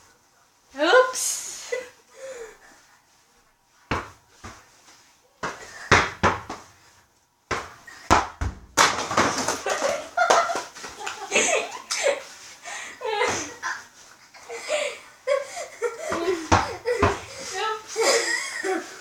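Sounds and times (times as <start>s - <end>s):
volleyball thumps: 3.9s - 4.6s, 5.4s - 6.8s, 7.5s - 11.0s, 16.0s - 17.6s.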